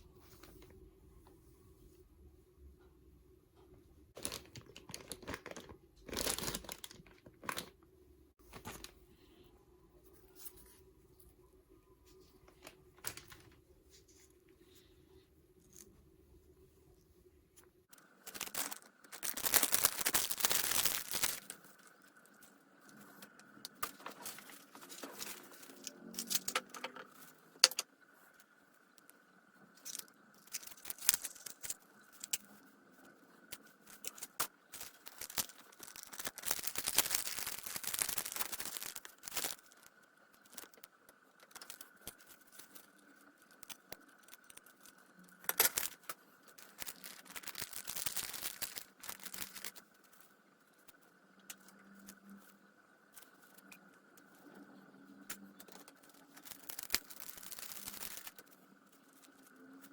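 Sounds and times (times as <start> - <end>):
metal parts clicking and clinking: 23.7 - 27.9.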